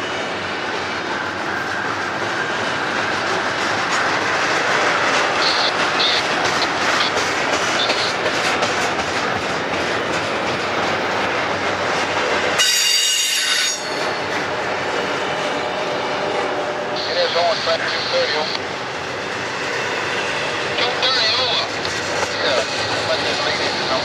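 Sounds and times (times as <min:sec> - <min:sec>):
wheels clickety-clack: 0:00.0 - 0:16.7, 0:18.5 - 0:24.0
steel wheels rumbling on rail: 0:00.0 - 0:24.0
high-pitched wheel squeals: 0:12.6 - 0:14.2.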